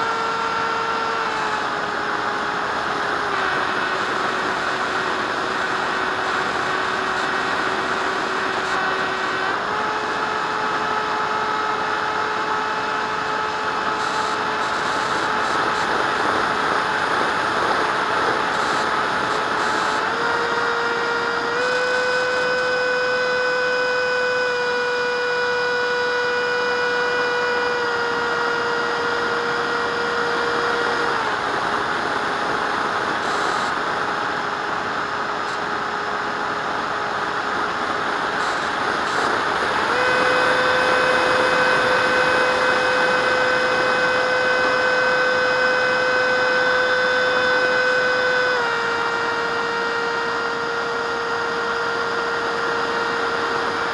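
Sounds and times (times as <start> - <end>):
electric ducted fan jet whining: 0.0 - 53.9.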